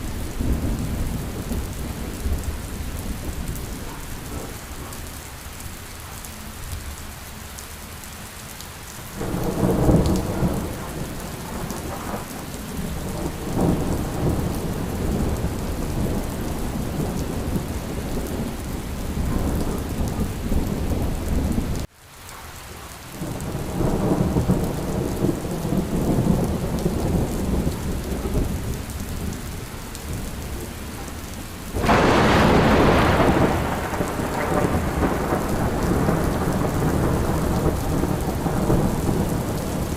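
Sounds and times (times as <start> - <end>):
thunder rumbling: 0.0 - 5.3, 9.1 - 21.9, 23.2 - 39.9
steady rain: 0.0 - 39.9
sharp peal of thunder: 31.8 - 39.8.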